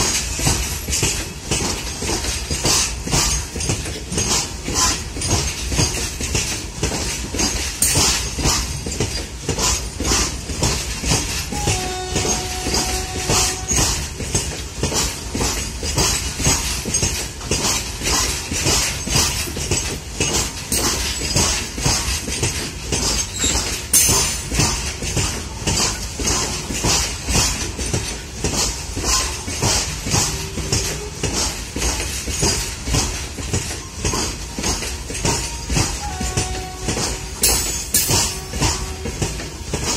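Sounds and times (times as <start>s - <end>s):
train wheels clacking over rail joints: 0.0s - 39.9s
sharp metal clank: 23.0s - 24.8s, 33.8s - 38.9s.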